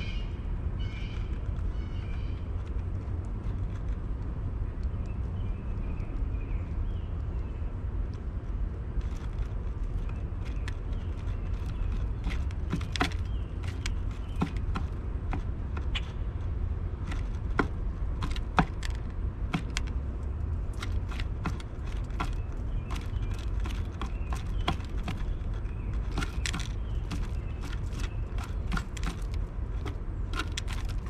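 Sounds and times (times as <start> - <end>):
bird beak pecking seed: 1.0 - 31.0.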